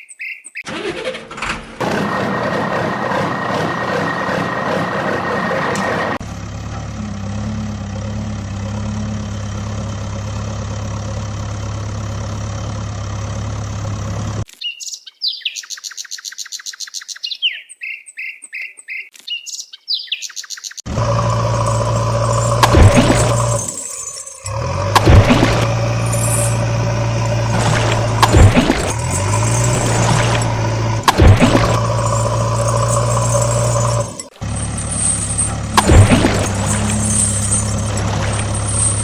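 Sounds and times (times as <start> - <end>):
high bird chirps: 0.0 - 0.7, 14.5 - 20.9
engine hum: 0.7 - 14.5, 20.9 - 39.0.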